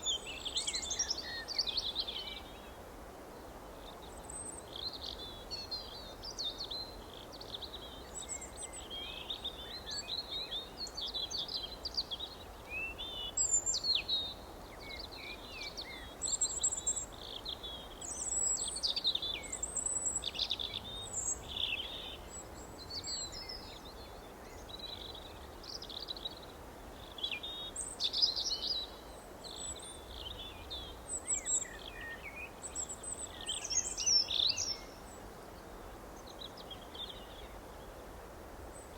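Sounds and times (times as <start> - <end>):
low background hiss: 0.0 - 38.9
songbirds chirping and warbling: 4.1 - 37.9.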